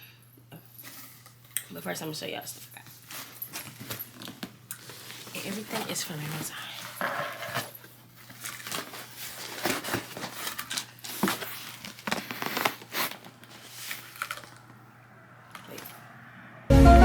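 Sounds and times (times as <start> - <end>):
packaging crinkling and rustling: 2.5 - 16.1.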